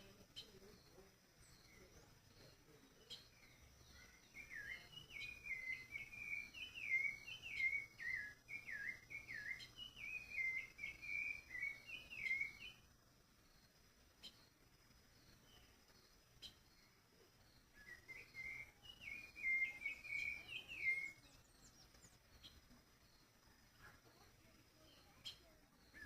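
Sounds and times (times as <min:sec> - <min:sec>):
songbird whistling notes: 0:03.1 - 0:12.9, 0:17.6 - 0:22.6, 0:24.8 - 0:26.0.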